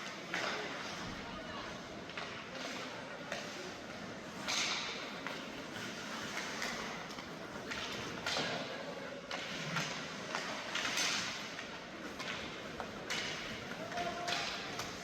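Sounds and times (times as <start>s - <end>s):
hockey sticks and puck clacking: 0.0s - 1.0s, 1.9s - 15.0s
skate blades scraping ice: 0.2s - 15.0s.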